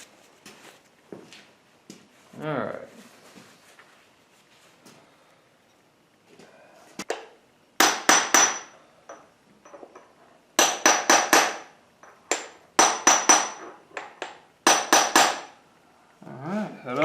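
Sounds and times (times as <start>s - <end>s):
hammer striking metal: 7.8s - 8.8s, 10.6s - 15.6s.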